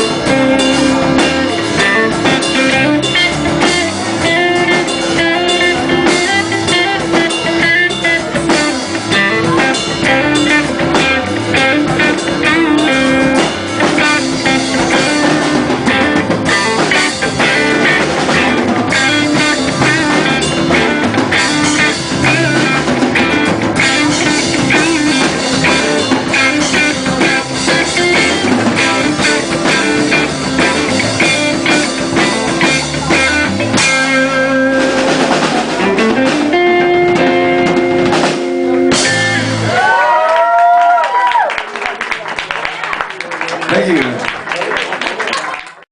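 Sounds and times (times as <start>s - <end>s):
electric guitar lead: 0.0s - 41.5s
drum kit: 0.0s - 42.2s
rock band playing live: 0.0s - 45.8s.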